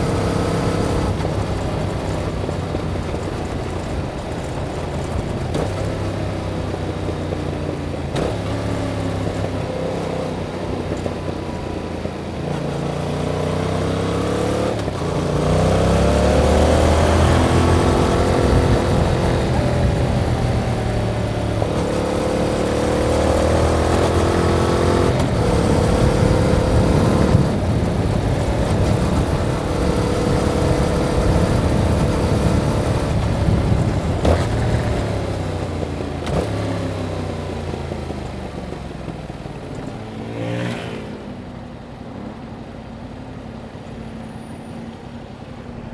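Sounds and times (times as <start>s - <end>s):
motorcycle engine revving: 0.0s - 42.7s.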